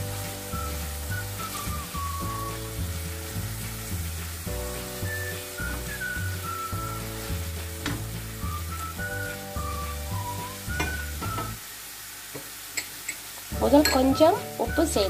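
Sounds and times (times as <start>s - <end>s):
background music with bass line: 0.0s - 11.6s
curry sizzling in a pan: 0.0s - 15.0s.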